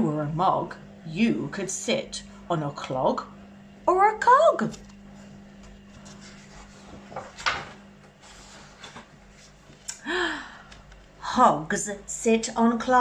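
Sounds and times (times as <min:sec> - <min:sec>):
book pages rustling: 0:04.7 - 0:09.9.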